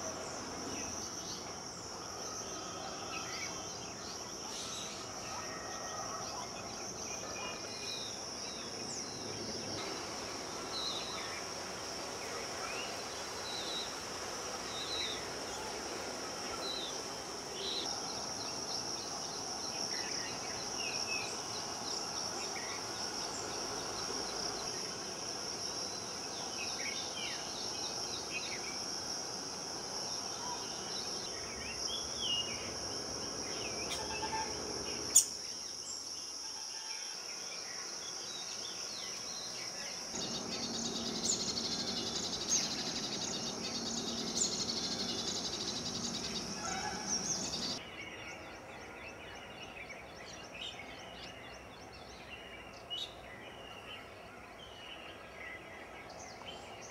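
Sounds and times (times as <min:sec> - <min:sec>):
high insect drone: 0:00.0 - 0:51.9
birds chirping: 0:40.1 - 0:47.8.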